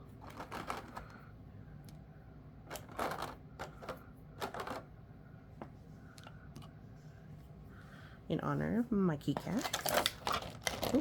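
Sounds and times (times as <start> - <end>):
game pieces clicking and clattering: 0.2 - 1.2, 2.7 - 4.9.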